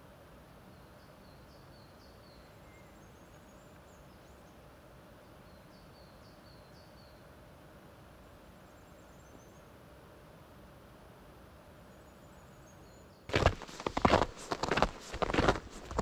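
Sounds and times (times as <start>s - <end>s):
faint steady hiss: 0.0s - 16.0s
small songbird singing: 0.5s - 7.4s, 8.6s - 9.8s, 11.9s - 16.0s.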